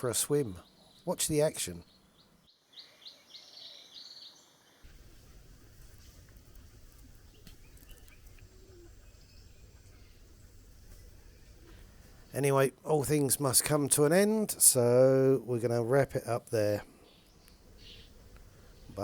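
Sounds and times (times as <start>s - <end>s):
birds chirping: 0.0s - 19.0s
low background rumble: 4.9s - 12.4s.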